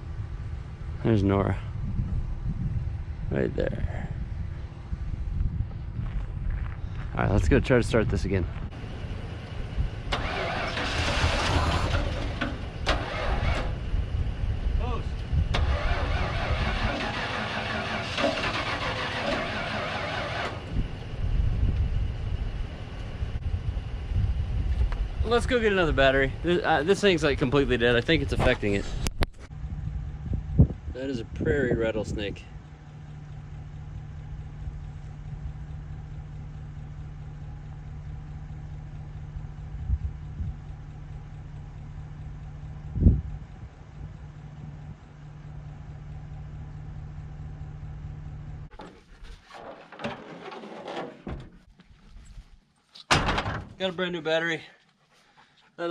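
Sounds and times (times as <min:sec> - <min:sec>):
truck engine idling: 0:00.0 - 0:51.8
starter motor cranking: 0:10.1 - 0:13.8, 0:15.5 - 0:20.8.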